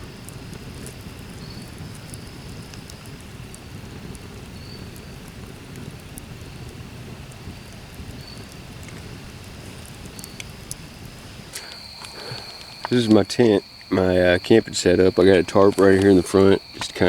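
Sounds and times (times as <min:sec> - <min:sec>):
wind rumble on microphone: 0:00.0 - 0:17.0
faint high ticks: 0:09.8 - 0:10.8, 0:11.5 - 0:14.8.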